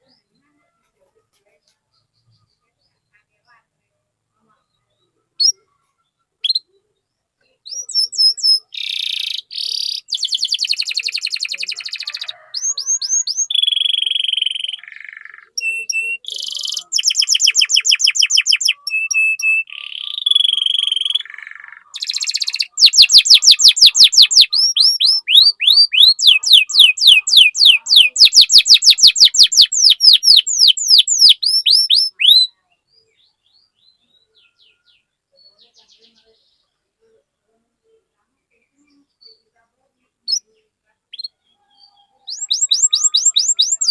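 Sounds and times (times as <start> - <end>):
canary singing: 4.5 - 37.2, 37.8 - 43.9.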